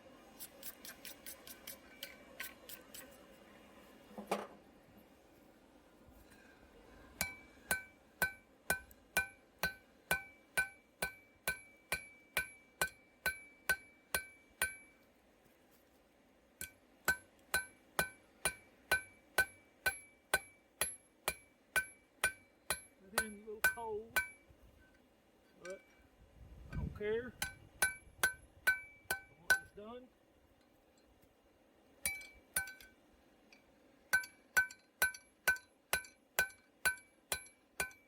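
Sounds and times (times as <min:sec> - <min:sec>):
hammer striking hot steel: 0:07.2 - 0:15.0, 0:16.6 - 0:24.9, 0:27.4 - 0:29.8, 0:32.0 - 0:33.0, 0:34.1 - 0:38.0.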